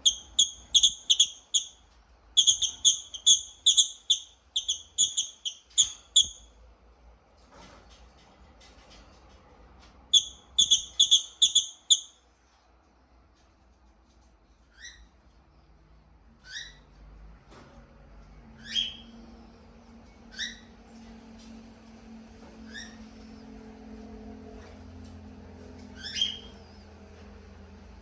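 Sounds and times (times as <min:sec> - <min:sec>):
lovebird chirping: 0:00.0 - 0:01.8, 0:02.4 - 0:06.4, 0:10.2 - 0:12.1.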